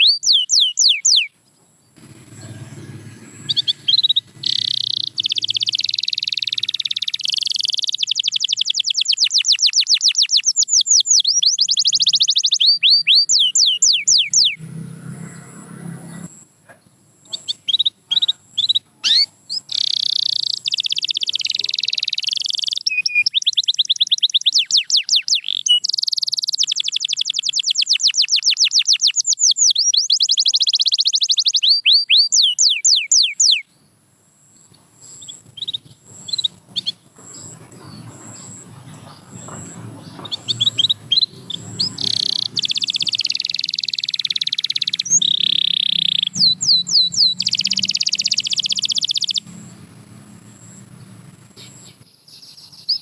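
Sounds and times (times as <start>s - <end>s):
short bird chirps: 0.0s - 1.3s, 2.4s - 14.6s, 17.2s - 33.7s, 39.6s - 49.5s
canary singing trills: 0.0s - 53.0s.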